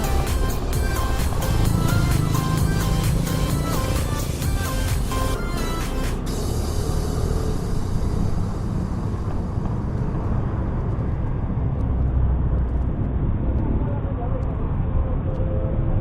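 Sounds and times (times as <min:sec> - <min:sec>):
background music: 0:00.0 - 0:09.2
wind and road noise on helmet: 0:06.0 - 0:16.0.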